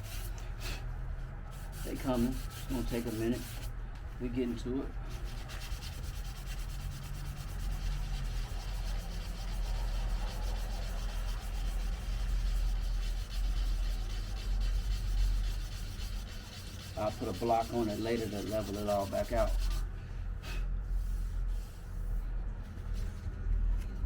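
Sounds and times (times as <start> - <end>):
sandpaper scraping painted metal: 1.5 - 3.7, 5.1 - 19.9.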